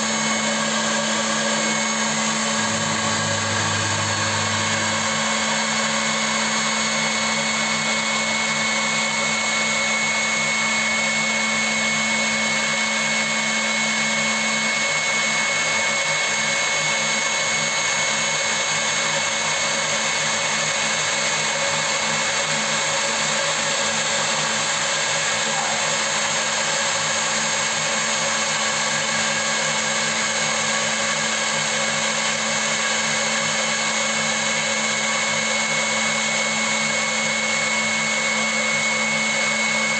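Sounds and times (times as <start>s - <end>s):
low hum: 0.0s - 7.6s
milling machine whining: 0.0s - 19.4s, 22.2s - 39.9s.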